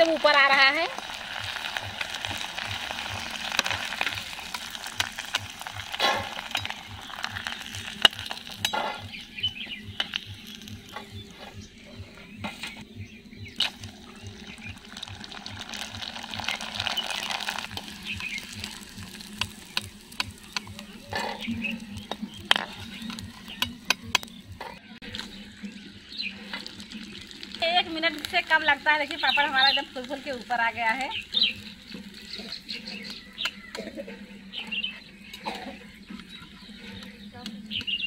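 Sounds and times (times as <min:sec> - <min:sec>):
crisps sizzling in hot oil: 0:00.0 - 0:38.0
utensil scraping pan: 0:05.9 - 0:06.8.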